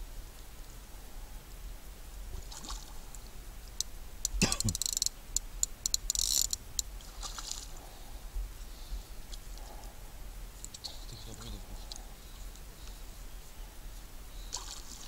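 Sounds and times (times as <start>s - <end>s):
sharp clicks: 3.8s - 6.9s.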